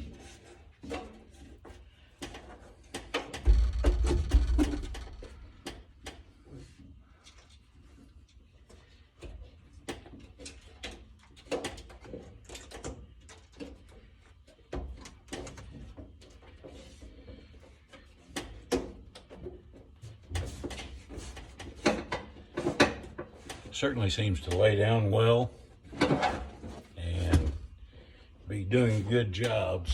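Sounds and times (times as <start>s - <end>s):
sharp knocks: 3.4s - 5.7s.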